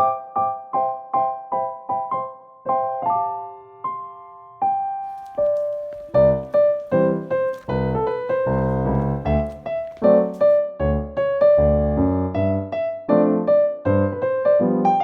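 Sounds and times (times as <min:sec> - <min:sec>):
piano notes: 0:05.1 - 0:15.0.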